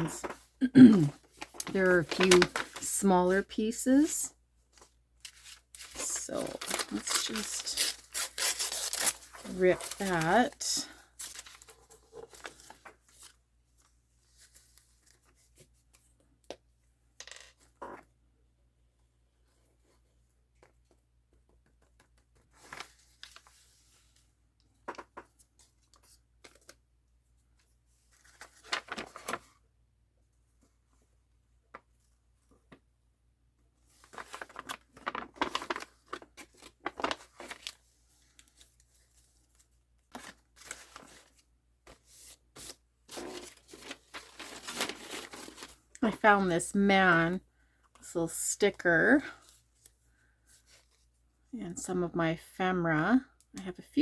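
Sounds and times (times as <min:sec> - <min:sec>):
craft materials tearing and rustling: 0:05.4 - 0:10.6.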